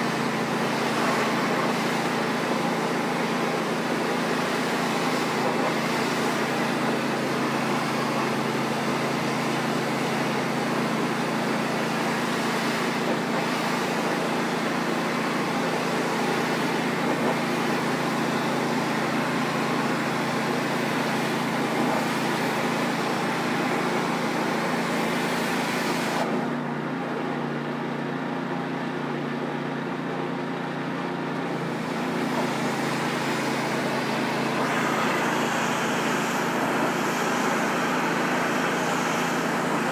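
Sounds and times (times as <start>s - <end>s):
pressure washer engine running: 0.0s - 39.9s
spray jet hissing: 32.2s - 39.9s.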